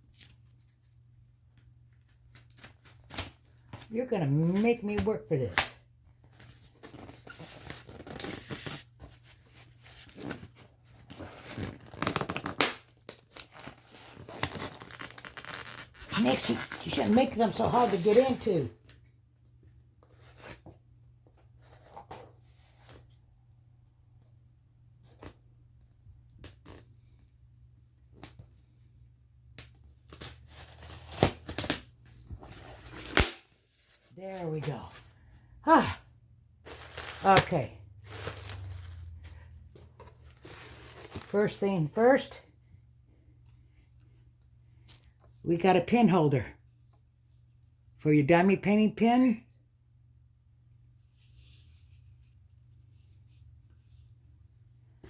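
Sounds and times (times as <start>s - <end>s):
packaging crinkling and rustling: 9.9s - 19.0s, 36.7s - 41.9s
packaging tearing and crinkling: 11.2s - 18.5s, 29.9s - 33.5s.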